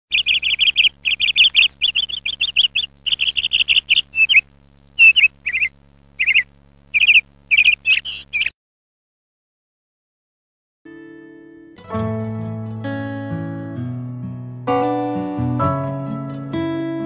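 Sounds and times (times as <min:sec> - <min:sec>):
small songbird chirping: 0:00.1 - 0:08.5.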